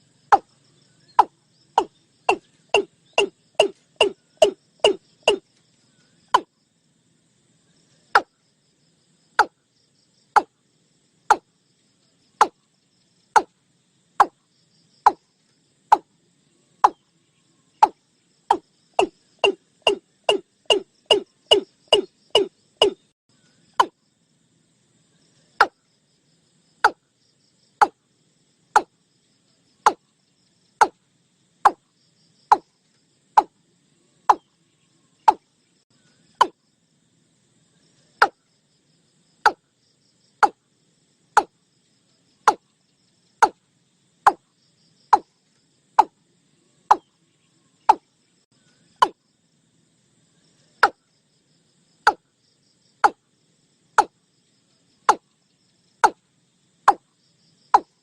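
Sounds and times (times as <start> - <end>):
bird giving hollow notes: 1.2 - 5.5, 17.8 - 23.1.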